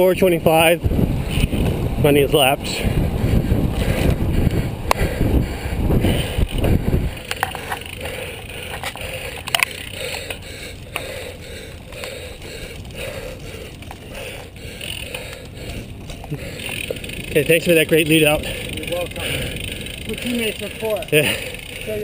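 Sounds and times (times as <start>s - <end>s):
wind rushing over microphone: 0.0s - 7.8s
bicycle freewheel hub ticking: 2.6s - 22.0s
tyre noise: 2.9s - 22.0s.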